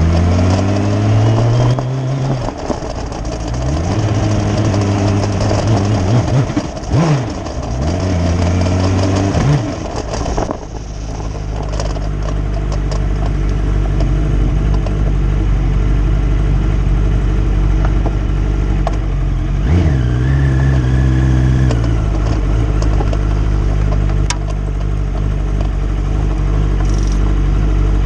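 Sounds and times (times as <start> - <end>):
racing car engine idling and revving: 0.0 - 28.0.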